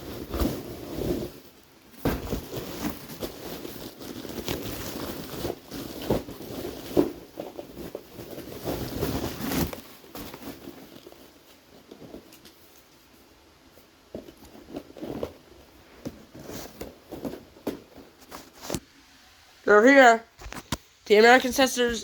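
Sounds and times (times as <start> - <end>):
cardboard package knocks and scrapes: 0.0 - 11.2, 14.1 - 18.8.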